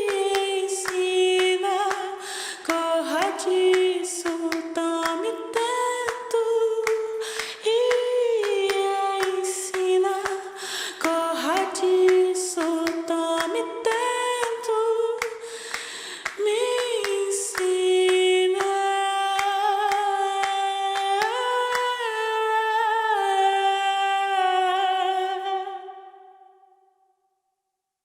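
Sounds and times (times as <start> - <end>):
finger snaps: 15.2 - 17.7.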